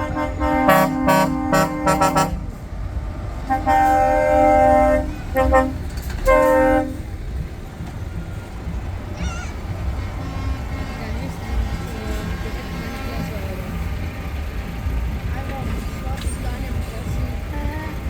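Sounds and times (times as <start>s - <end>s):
truck air horn blasts: 0.0s - 2.7s, 3.4s - 7.3s, 9.2s - 13.8s
truck engines rumbling: 0.0s - 18.0s.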